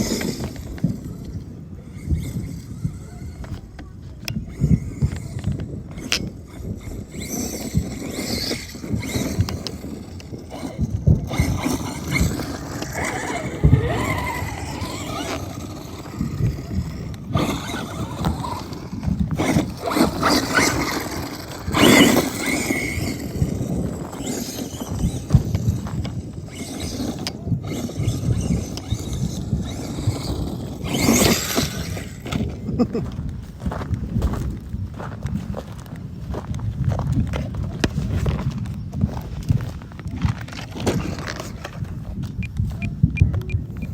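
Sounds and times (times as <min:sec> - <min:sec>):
electric motor whine: 0:00.0 - 0:32.6
tyres rushing over rough ground: 0:00.0 - 0:42.8.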